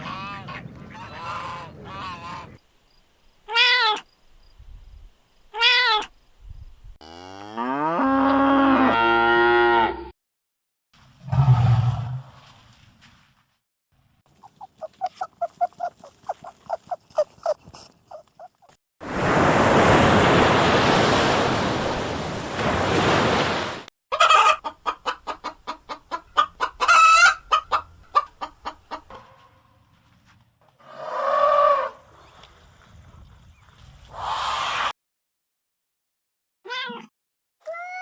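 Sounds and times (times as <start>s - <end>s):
chickens clucking: 14.3s - 18.7s, 24.1s - 29.2s.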